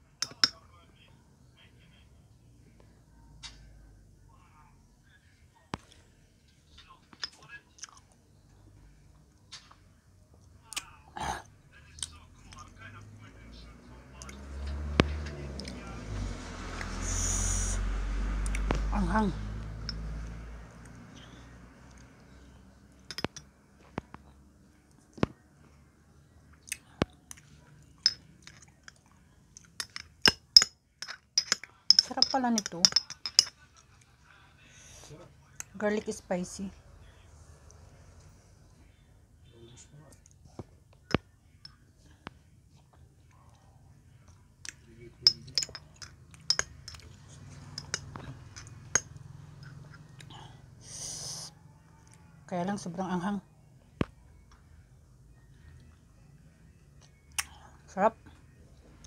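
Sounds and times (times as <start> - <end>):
chewing clicks and smacks: 57.0 - 57.6.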